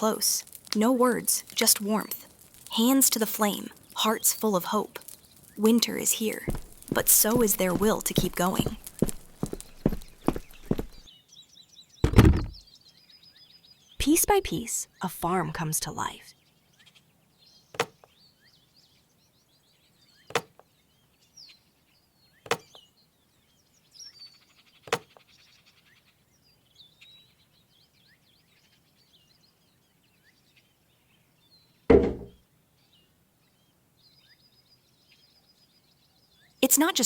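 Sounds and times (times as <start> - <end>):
faint birdsong: 0.0 - 37.0
tool knocking on wood: 12.0 - 12.6, 31.9 - 32.4
heavy impact: 31.9 - 32.4.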